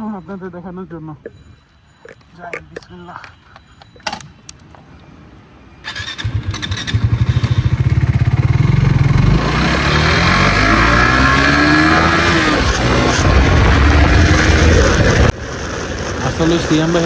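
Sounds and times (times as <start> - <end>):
motorcycle engine accelerating: 5.9 - 15.4.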